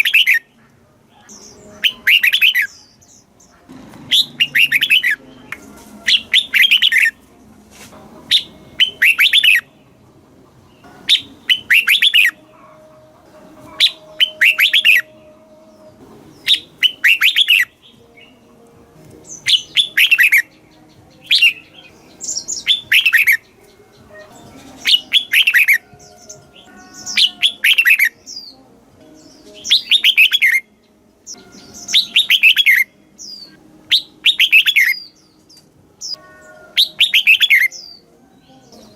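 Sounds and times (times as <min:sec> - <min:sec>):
bird singing whistled phrases: 0:00.0 - 0:00.5, 0:01.4 - 0:02.8, 0:04.1 - 0:05.2, 0:06.1 - 0:07.1, 0:08.3 - 0:09.7, 0:11.1 - 0:12.4, 0:13.8 - 0:15.1, 0:16.4 - 0:18.3, 0:19.4 - 0:20.5, 0:21.3 - 0:28.5, 0:29.6 - 0:30.6, 0:31.4 - 0:35.1, 0:36.0 - 0:38.0.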